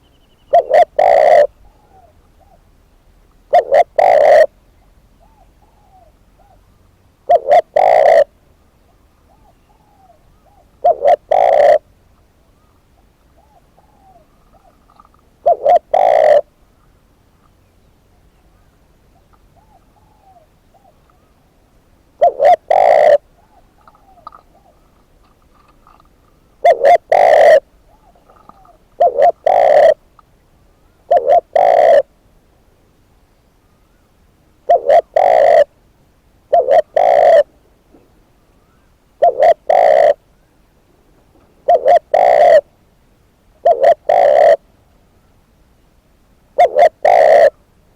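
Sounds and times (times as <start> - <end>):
distant bird call notes: 0.0 - 2.7, 36.5 - 42.7
dove cooing: 0.0 - 2.7, 3.4 - 8.4, 9.3 - 11.9, 13.0 - 16.6, 18.5 - 21.3, 22.2 - 30.0, 31.1 - 32.1, 34.7 - 35.8, 36.5 - 38.2, 39.2 - 40.3, 41.2 - 42.8, 43.6 - 44.7, 46.6 - 47.6.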